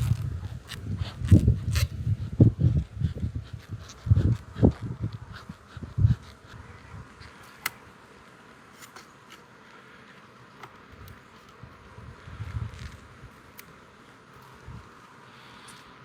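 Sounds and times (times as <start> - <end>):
honeybees buzzing: 0.0 - 16.0
sharp clicks: 7.2 - 7.9.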